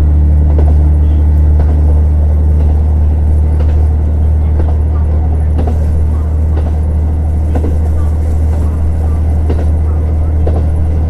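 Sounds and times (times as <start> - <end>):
diesel railcar engine drone: 0.0 - 11.0.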